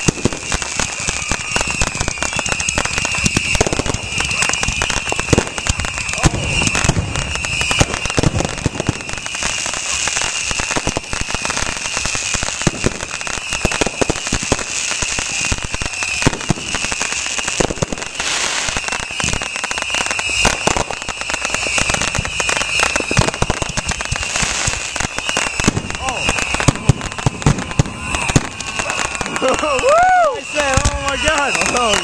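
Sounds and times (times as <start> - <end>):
fireworks crackling and popping: 0.0 - 32.0.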